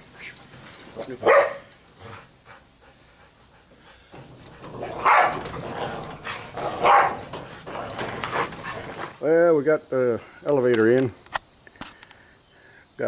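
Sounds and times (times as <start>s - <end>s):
dog barking: 1.2s - 1.7s, 4.8s - 5.7s, 6.6s - 7.4s.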